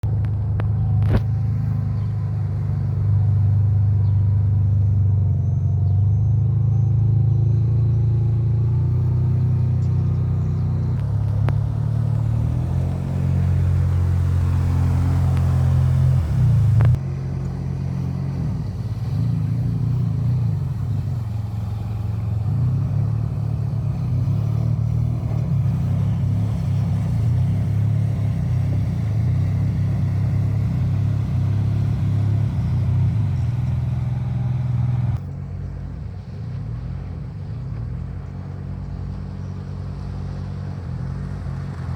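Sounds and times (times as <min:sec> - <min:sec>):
jet ski engine droning: 0:00.0 - 0:41.9.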